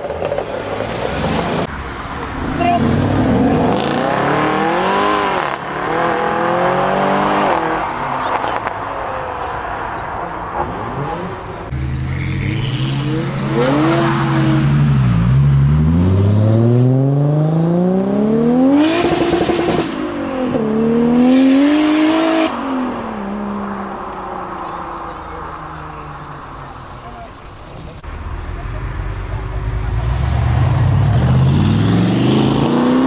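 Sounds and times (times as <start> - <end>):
car engine accelerating hard: 0.0 - 33.0.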